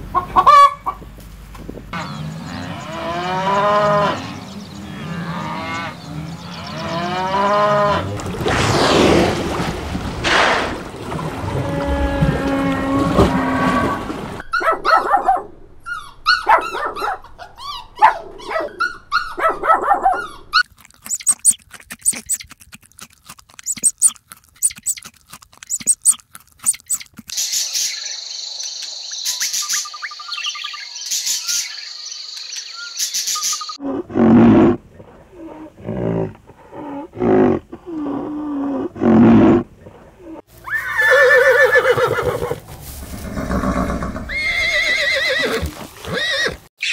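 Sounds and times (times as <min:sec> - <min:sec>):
animal calls: 0:15.8 - 0:34.0
horse neighing: 0:40.7 - 0:42.6, 0:43.2 - 0:46.9.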